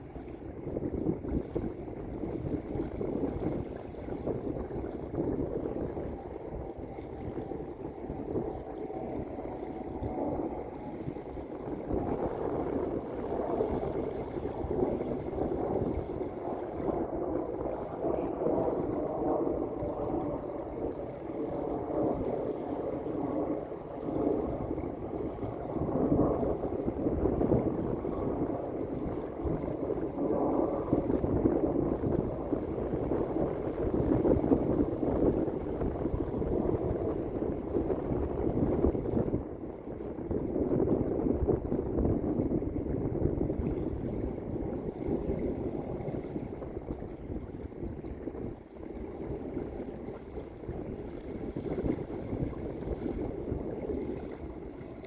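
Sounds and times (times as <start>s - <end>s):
lake waves lapping on beach: 40.7s - 55.0s.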